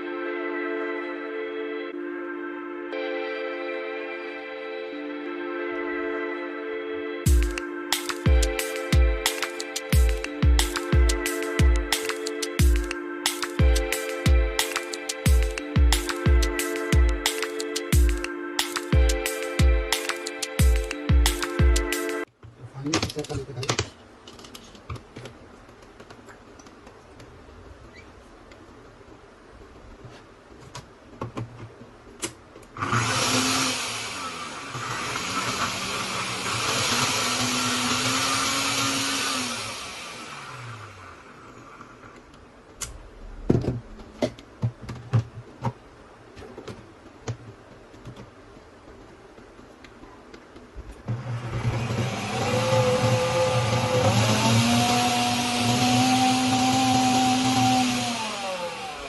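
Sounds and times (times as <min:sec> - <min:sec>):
blender motor whirring: 0:32.8 - 0:41.8, 0:51.1 - 0:59.0.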